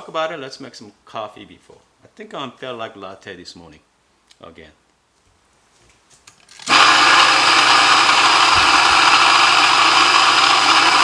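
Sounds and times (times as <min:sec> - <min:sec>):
coffee grinder motor grinding: 0:06.6 - 0:11.0.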